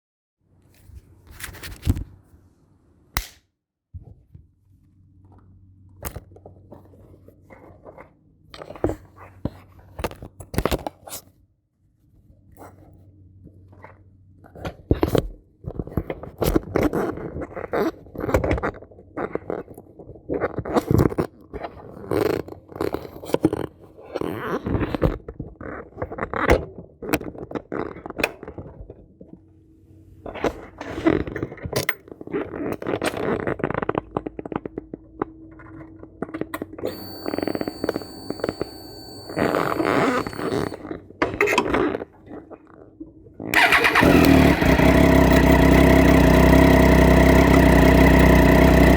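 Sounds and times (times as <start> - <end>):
faint high-pitched tone: 36.8 - 40.8.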